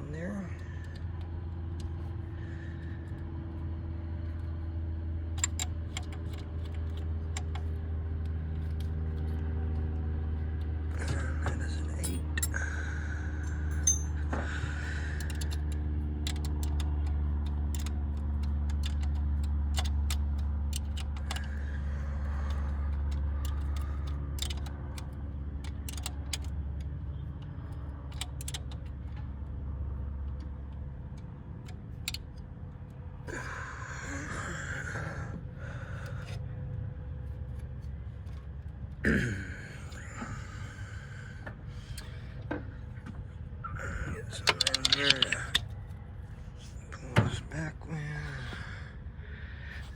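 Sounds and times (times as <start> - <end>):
steady low hum: 0.0 - 49.9
hand tools clinking on metal: 13.7 - 14.4, 44.3 - 45.6
scraping and rattling: 44.0 - 45.7.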